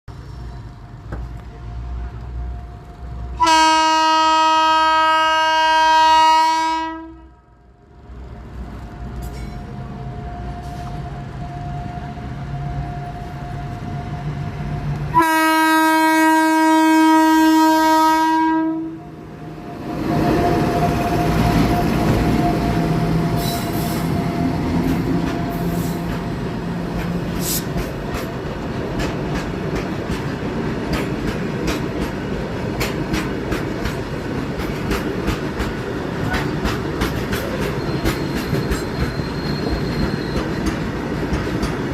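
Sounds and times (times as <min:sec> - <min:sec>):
train rushing past: 0:00.1 - 0:41.9
train horn blasts: 0:03.4 - 0:07.5, 0:15.1 - 0:19.1
wheels clattering over rail joints: 0:24.8 - 0:41.9.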